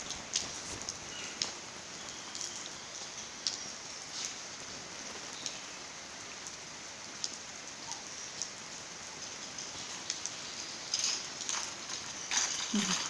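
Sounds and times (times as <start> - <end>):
steady rain: 0.0 - 13.0
water drips and splashes: 0.0 - 13.0.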